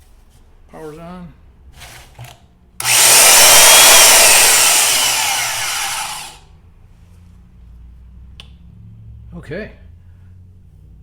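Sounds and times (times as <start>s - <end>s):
bandsaw motor whine: 2.8s - 6.4s.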